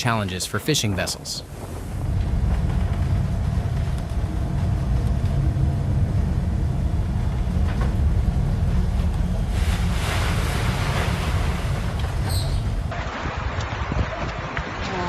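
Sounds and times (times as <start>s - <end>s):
boat engine rumble: 0.0s - 15.0s
wave breaking spray: 9.4s - 15.0s.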